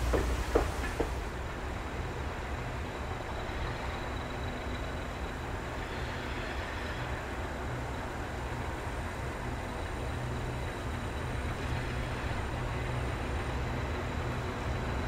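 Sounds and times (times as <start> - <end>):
train wheels clacking over rail joints: 0.0 - 1.6
distant diesel locomotive rumble: 0.0 - 15.0.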